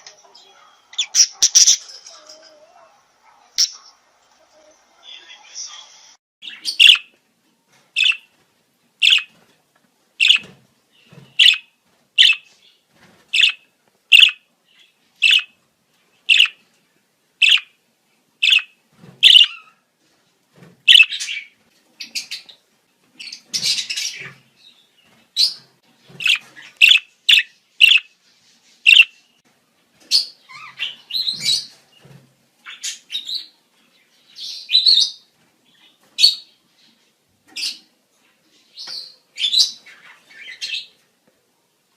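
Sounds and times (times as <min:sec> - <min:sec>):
budgerigars chirping and warbling: 0:00.4 - 0:02.3, 0:03.6 - 0:04.0, 0:06.4 - 0:07.1, 0:08.0 - 0:08.3, 0:09.0 - 0:09.3, 0:10.2 - 0:12.5, 0:13.4 - 0:15.6, 0:16.2 - 0:16.6, 0:17.4 - 0:17.7, 0:18.4 - 0:19.8, 0:20.9 - 0:22.6, 0:23.2 - 0:24.5, 0:25.4 - 0:28.2, 0:28.9 - 0:29.2, 0:30.0 - 0:31.8.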